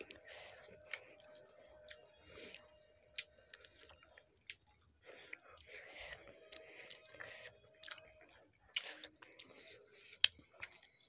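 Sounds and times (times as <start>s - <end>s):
chewing and wet mouth sounds: 0.0s - 11.0s.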